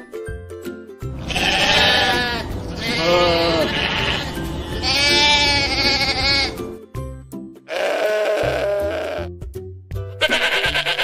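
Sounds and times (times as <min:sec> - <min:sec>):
background music: 0:00.0 - 0:11.0
sheep bleating: 0:01.2 - 0:06.7, 0:07.7 - 0:09.3, 0:10.2 - 0:11.0.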